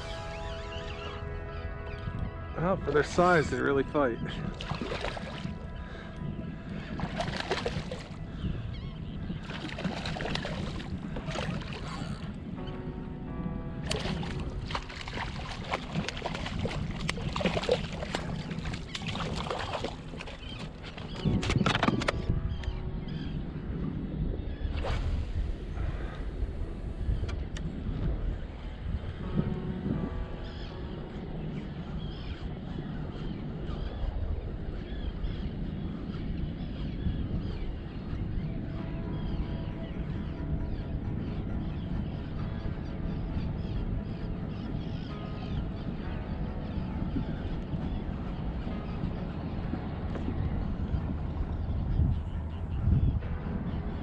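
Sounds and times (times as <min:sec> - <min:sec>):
birds calling: 0:00.0 - 0:25.0, 0:28.4 - 0:54.0
wind rumble on microphone: 0:00.0 - 0:54.0
water sloshing around kayak: 0:04.4 - 0:05.9, 0:06.6 - 0:12.4, 0:13.9 - 0:22.1.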